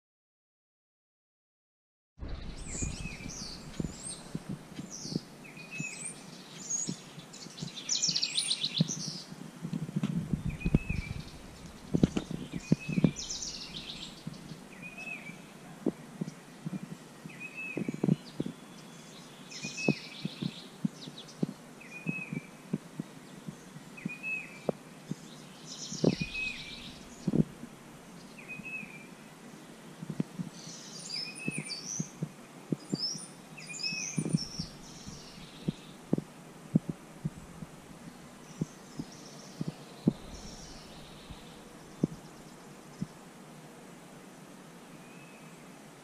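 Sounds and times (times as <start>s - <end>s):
low knocks and thumps: 2.2s - 5.2s, 9.6s - 14.6s, 17.8s - 18.6s, 26.0s - 27.7s, 34.2s - 37.8s, 39.6s - 42.2s
birds singing: 2.2s - 9.4s, 10.3s - 36.2s, 37.2s - 43.3s.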